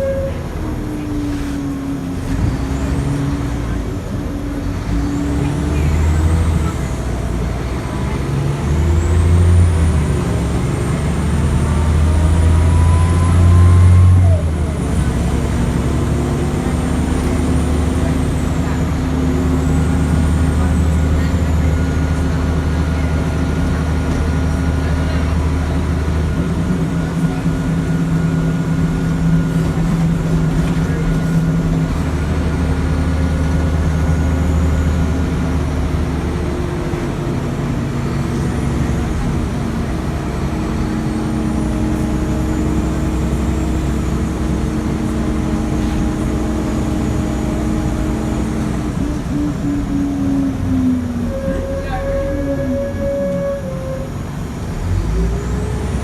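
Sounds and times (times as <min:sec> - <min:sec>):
bus diesel engine shifting gears: 0:00.0 - 0:56.0.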